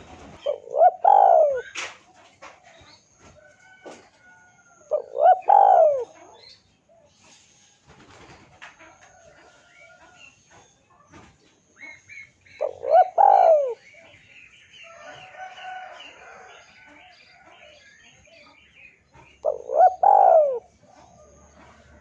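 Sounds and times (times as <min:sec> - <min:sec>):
dove cooing: 0:00.0 - 0:02.0, 0:04.8 - 0:07.1, 0:11.8 - 0:14.1, 0:19.4 - 0:22.0
faint small birds chirping: 0:00.0 - 0:22.0.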